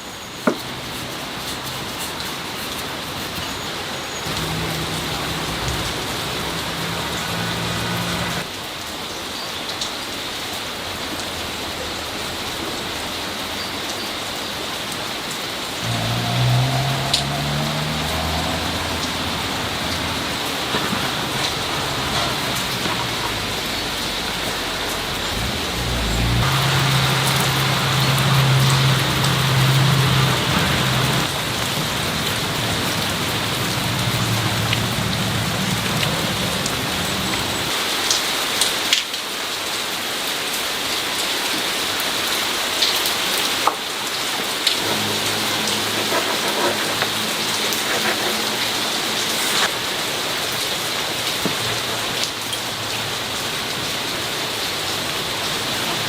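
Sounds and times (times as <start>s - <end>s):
low hum: 4.3s - 8.4s, 15.8s - 37.7s.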